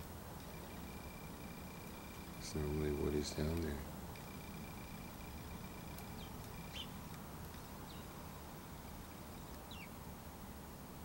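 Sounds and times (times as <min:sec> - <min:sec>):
small birds chirping faintly: 0:00.0 - 0:11.0
steady low hum: 0:00.0 - 0:11.0.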